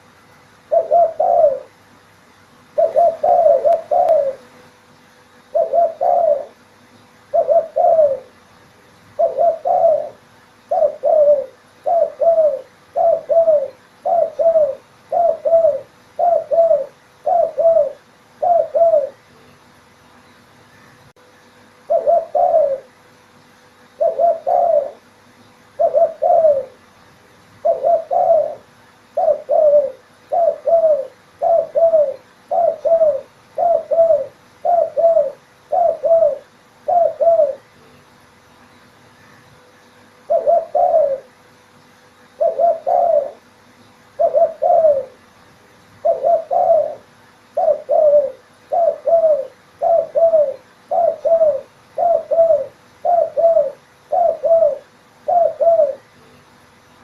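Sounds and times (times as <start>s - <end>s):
dove cooing: 0.7s - 1.8s, 2.7s - 4.6s, 5.4s - 6.7s, 7.3s - 8.4s, 9.1s - 19.3s, 21.8s - 23.0s, 23.9s - 25.1s, 25.7s - 26.9s, 27.6s - 37.8s, 40.2s - 41.4s, 42.4s - 43.5s, 44.1s - 45.3s, 46.0s - 56.2s.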